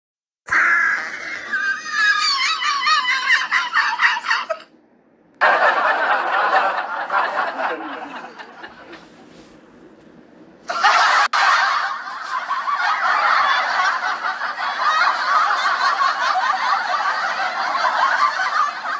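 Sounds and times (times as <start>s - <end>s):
high-pitched wavering laughter: 0.5s - 4.7s, 10.7s - 18.9s.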